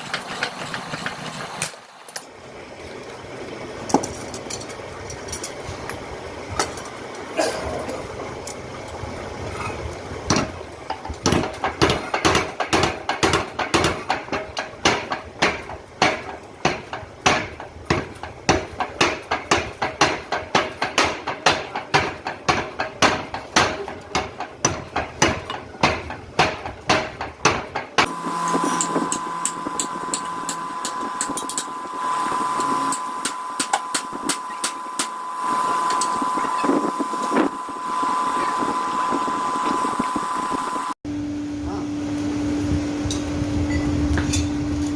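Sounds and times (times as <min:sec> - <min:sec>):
power hammer striking steel: 0:10.3 - 0:38.9
machine hum with high tone: 0:28.0 - 0:44.9.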